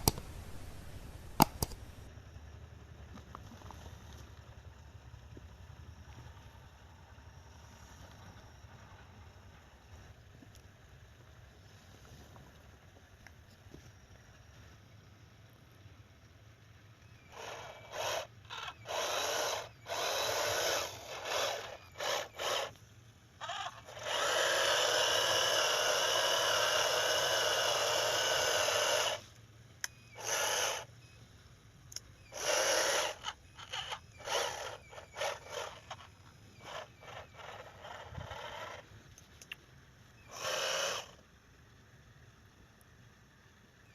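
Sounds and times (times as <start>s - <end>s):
small electric motors whirring: 0.0s - 2.1s, 17.2s - 31.2s, 31.9s - 39.5s, 40.2s - 41.3s.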